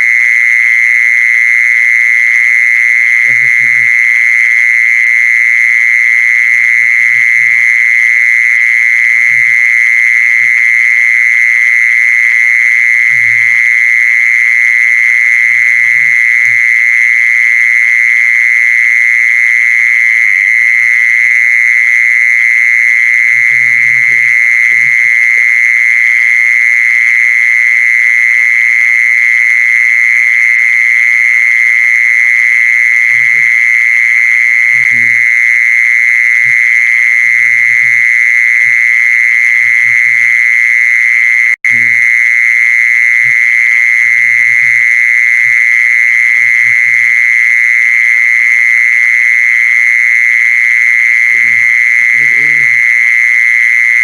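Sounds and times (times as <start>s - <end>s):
high-pitched buzzing trill: 51.2s - 53.0s.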